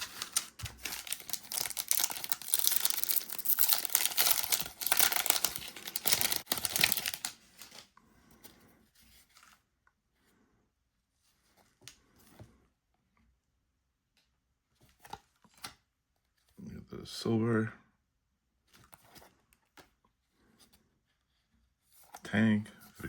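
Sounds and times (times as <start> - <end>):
plastic wrapper ripping and crinkling: 0.0 - 7.9.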